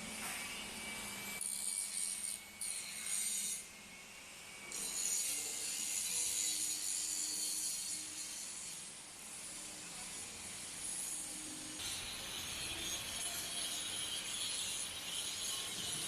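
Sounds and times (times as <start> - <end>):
hissing grinding machinery: 3.8 - 16.0.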